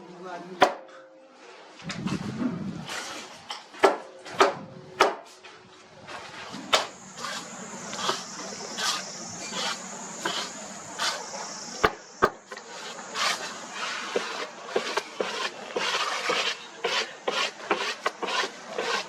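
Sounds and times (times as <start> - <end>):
sharp knocks: 3.8 - 5.3
trowel scraping plaster on brick: 6.4 - 19.0.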